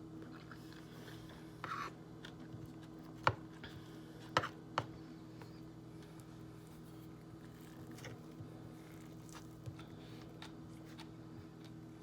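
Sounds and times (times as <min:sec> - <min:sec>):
low steady hum: 0:00.0 - 0:12.0
crunchy eating rustle: 0:06.0 - 0:12.0.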